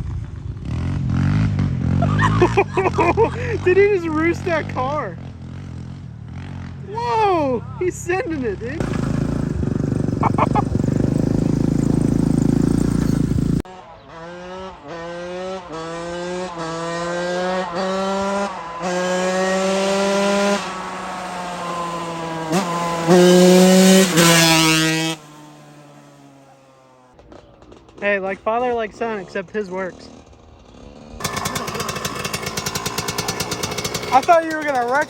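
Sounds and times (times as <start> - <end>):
small engine revving and shifting: 0.6 - 4.8, 8.8 - 26.7, 30.2 - 35.0.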